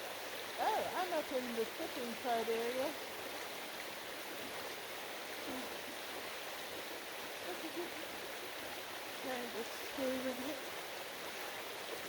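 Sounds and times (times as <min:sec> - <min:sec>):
creek water rushing over rock: 0:00.0 - 0:12.0
faint short vocal sounds: 0:05.4 - 0:05.8.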